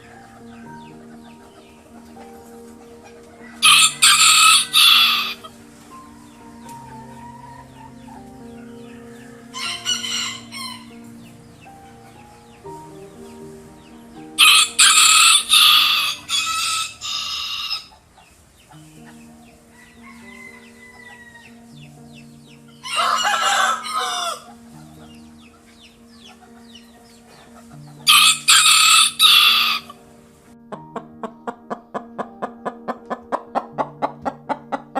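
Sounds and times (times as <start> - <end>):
soft background music: 0.0 - 34.9
rooster crowing: 3.4 - 5.5, 9.5 - 11.0, 14.4 - 17.9, 19.7 - 21.6, 22.8 - 24.6, 28.1 - 30.0.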